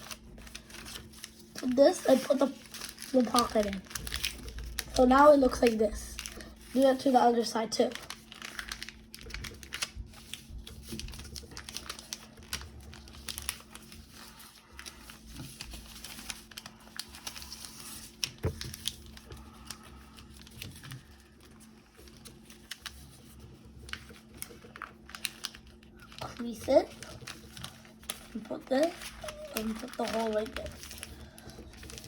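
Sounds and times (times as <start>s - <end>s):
paper being folded and creased: 0.0s - 32.0s.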